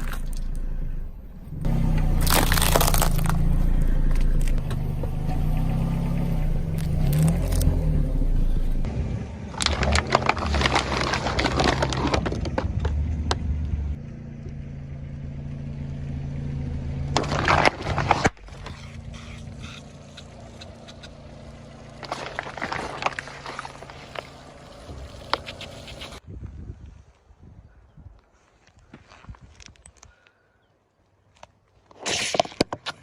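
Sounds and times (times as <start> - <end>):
low hum: 0.0 - 10.4
objects being crushed: 1.6 - 5.9, 9.5 - 13.3, 17.2 - 19.0, 22.0 - 25.5.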